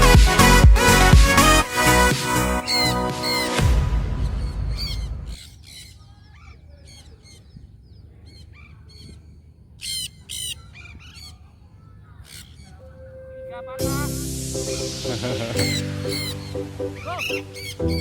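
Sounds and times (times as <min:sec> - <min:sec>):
parrots screeching and squawking: 0:02.6 - 0:03.6, 0:04.2 - 0:07.5, 0:09.8 - 0:11.4, 0:12.2 - 0:12.8, 0:15.6 - 0:18.0
low rumble: 0:03.6 - 0:05.4.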